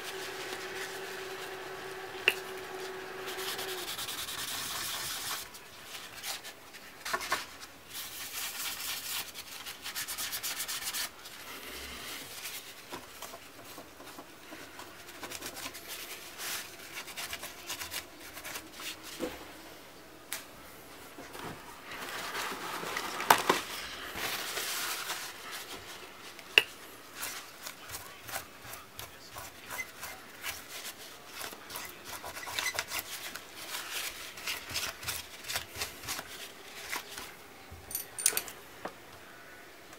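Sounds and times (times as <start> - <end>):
rubbing and scraping strokes: 0.0 - 19.4.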